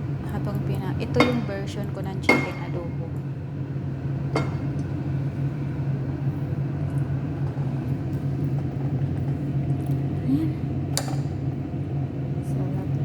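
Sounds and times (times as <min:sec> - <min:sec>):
low hum and rumble: 0:00.0 - 0:13.0.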